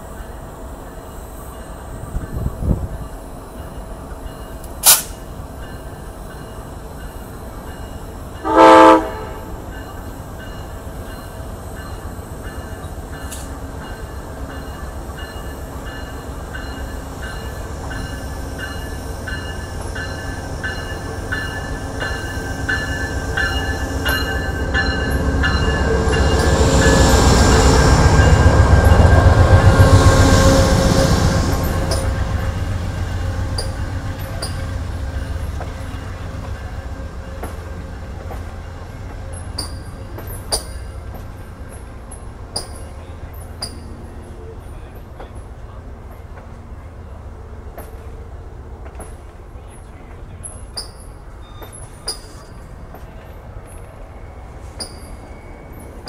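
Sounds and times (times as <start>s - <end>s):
train rumble: 0.0s - 56.0s
train wheels clicking on rail joints: 1.6s - 8.4s, 9.6s - 30.0s, 31.0s - 46.7s, 47.7s - 56.0s
train horn blast: 8.4s - 9.6s, 29.6s - 31.6s.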